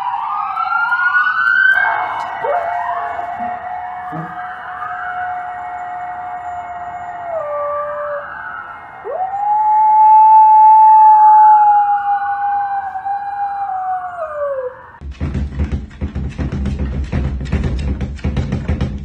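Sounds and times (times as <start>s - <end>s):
dog howling: 2.2s - 15.0s.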